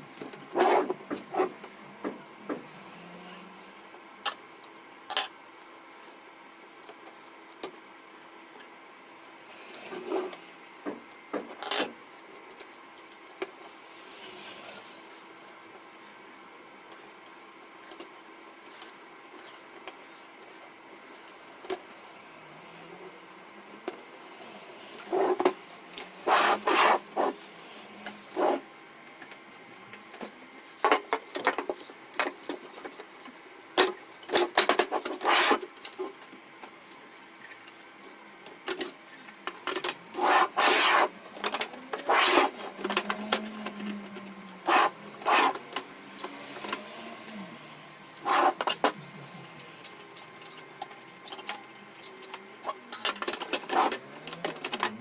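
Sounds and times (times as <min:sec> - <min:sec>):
hands clicking and scraping printer parts: 0:49.6 - 0:55.0.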